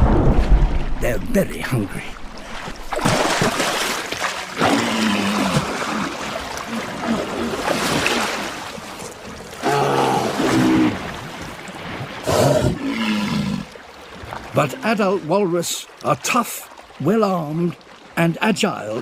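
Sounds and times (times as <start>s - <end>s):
surf washing: 0.0s - 12.8s.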